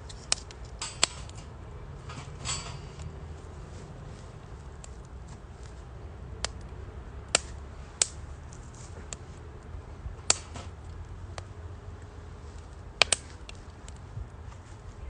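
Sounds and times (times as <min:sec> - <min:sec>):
wood fire crackling and popping: 0:00.0 - 0:01.4, 0:04.4 - 0:14.2
low steady rumble: 0:00.0 - 0:15.0.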